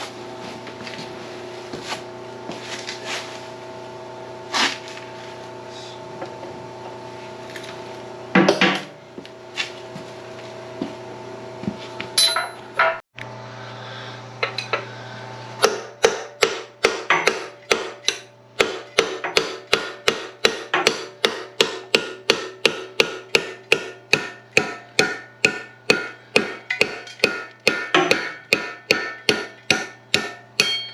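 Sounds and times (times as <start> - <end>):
steady hum: 0.0 - 30.9
hammer striking metal: 12.2 - 13.0, 15.6 - 30.9.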